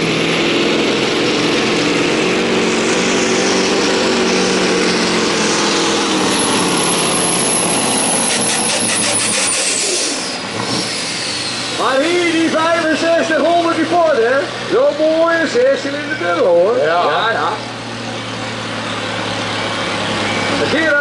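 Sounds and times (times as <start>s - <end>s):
truck diesel engine under load: 0.0s - 21.0s.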